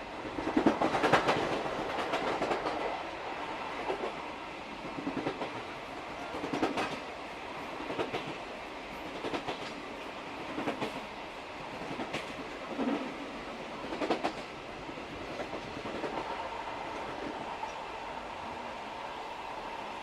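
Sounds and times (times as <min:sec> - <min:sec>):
train running rumble: 0:00.0 - 0:20.0
train wheels clicking over rail joints: 0:00.3 - 0:02.9, 0:04.8 - 0:07.0, 0:07.8 - 0:11.1, 0:11.7 - 0:14.6.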